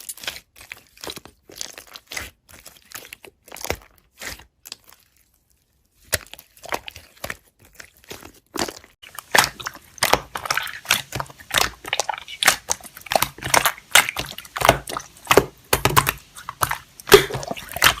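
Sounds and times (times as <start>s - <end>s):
slime clicking and popping: 8.5s - 18.0s.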